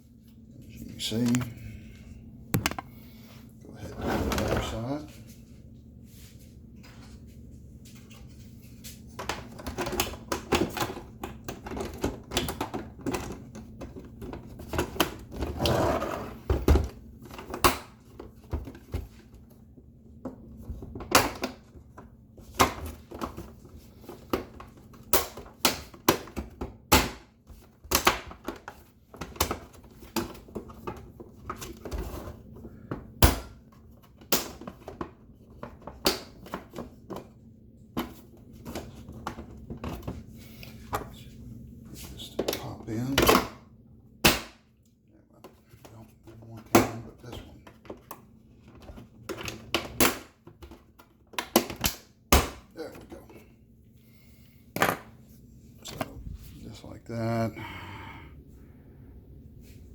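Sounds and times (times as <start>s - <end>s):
hard plastic clicking and knocking: 2.6s - 2.9s.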